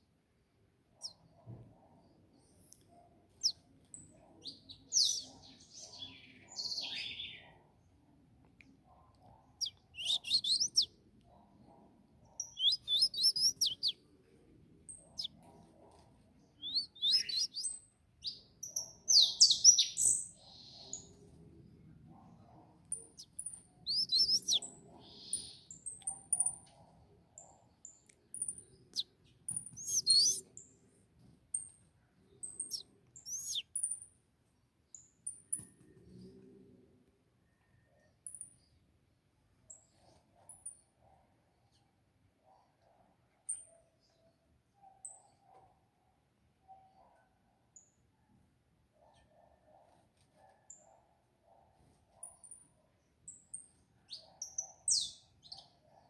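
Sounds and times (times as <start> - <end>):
songbirds chirping and singing: 3.4 - 8.0, 8.6 - 21.4, 22.1 - 30.8, 32.4 - 33.8, 53.1 - 56.0.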